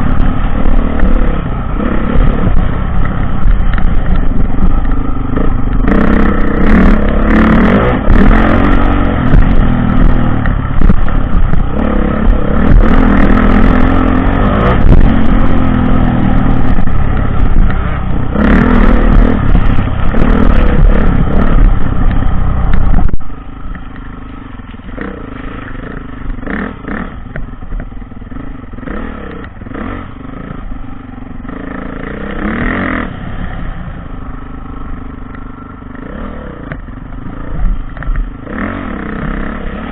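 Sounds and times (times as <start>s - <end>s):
dirt bike engine revving: 0.0s - 39.9s
sharp clicks and rattles: 0.2s - 28.0s.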